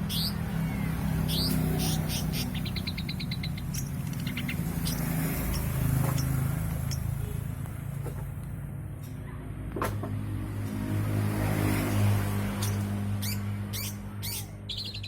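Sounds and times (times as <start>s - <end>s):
bird singing chattering song: 0.0s - 7.3s, 12.6s - 15.0s.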